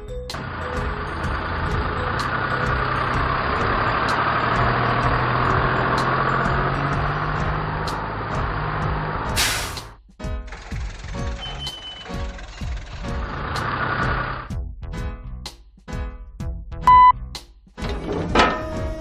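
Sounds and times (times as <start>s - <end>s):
heavy truck engine running: 0.0s - 14.5s
air brake hiss: 9.4s - 9.9s.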